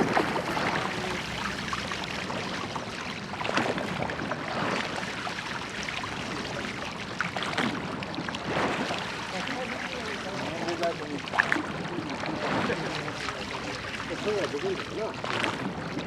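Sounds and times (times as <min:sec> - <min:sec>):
oar stroke splashes: 0:00.0 - 0:16.0
water rushing and splashing: 0:00.0 - 0:16.0.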